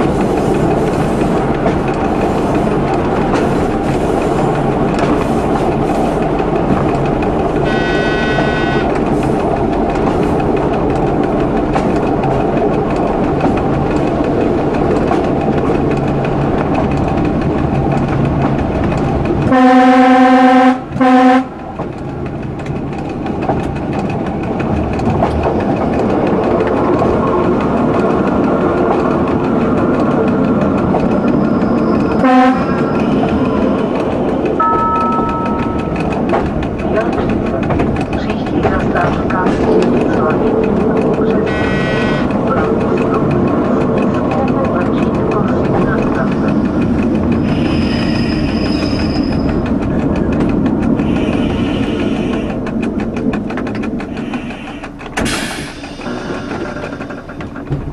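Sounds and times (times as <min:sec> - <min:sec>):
train rumbling with wheel clatter: 0:00.0 - 0:57.9
train horn blasts: 0:07.6 - 0:09.0, 0:19.5 - 0:21.6, 0:32.1 - 0:33.4, 0:41.5 - 0:42.3, 0:51.0 - 0:52.5.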